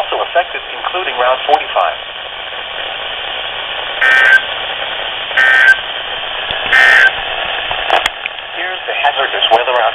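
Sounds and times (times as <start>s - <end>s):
radio hiss: 0.0s - 9.9s
data warble bursts: 4.0s - 4.5s, 5.4s - 5.8s, 6.7s - 7.2s.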